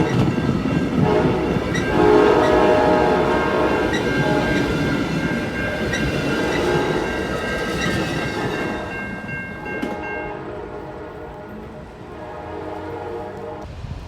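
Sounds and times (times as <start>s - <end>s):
train rolling on rails: 0.0s - 14.0s.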